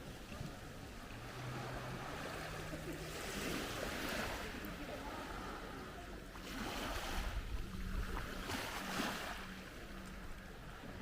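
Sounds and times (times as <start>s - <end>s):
sea waves washing ashore: 0.0s - 11.0s
wind on microphone: 6.6s - 9.6s.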